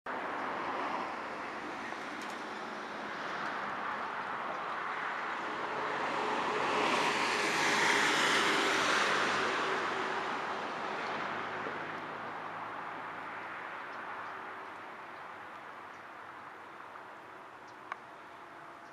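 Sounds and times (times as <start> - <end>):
highway traffic rush: 0.1 - 18.9
vehicle passing: 0.6 - 15.5.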